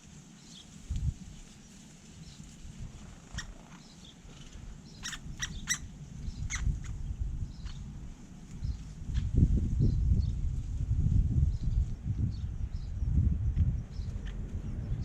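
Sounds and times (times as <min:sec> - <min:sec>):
woodpecker sharp calls: 0:03.3 - 0:07.9, 0:13.9 - 0:14.5
low rumble: 0:04.4 - 0:15.0.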